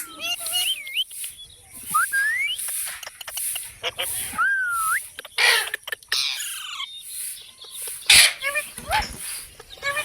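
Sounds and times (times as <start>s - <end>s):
parrot squawk: 5.4s - 6.8s, 8.1s - 9.1s.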